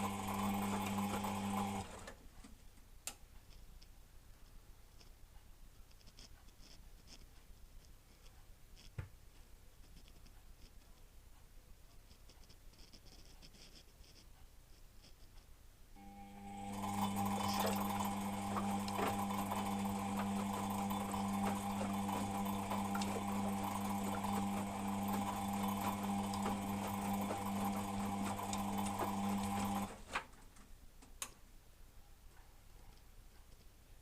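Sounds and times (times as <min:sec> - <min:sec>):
click: 0:03.0 - 0:03.9, 0:31.0 - 0:31.4
washing machine drum turning: 0:16.5 - 0:30.3.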